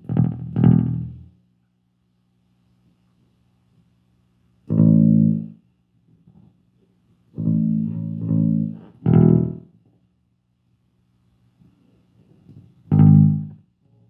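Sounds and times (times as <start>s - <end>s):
plucked bass guitar notes: 0.0s - 1.2s, 4.7s - 5.5s, 7.4s - 9.7s, 12.9s - 13.6s
low amp hum: 0.0s - 5.7s, 7.2s - 9.8s, 11.0s - 14.0s.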